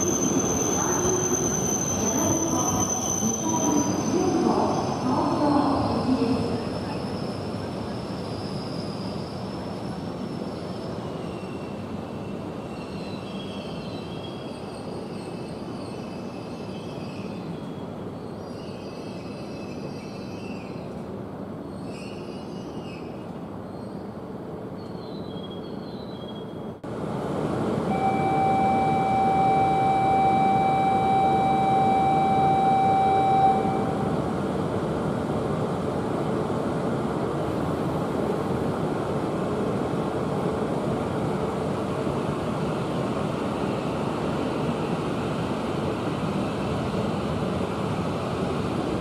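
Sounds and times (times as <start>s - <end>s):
faint wheel and brake squeals: 0.0s - 5.0s, 6.8s - 20.9s, 21.6s - 24.2s
steady tone: 27.9s - 34.2s.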